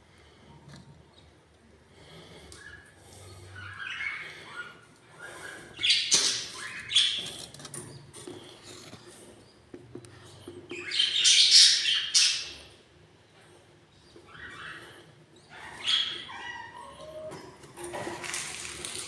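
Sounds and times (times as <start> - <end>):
budgerigars squawking and chirping: 2.6 - 8.1, 10.5 - 12.8, 14.0 - 17.3.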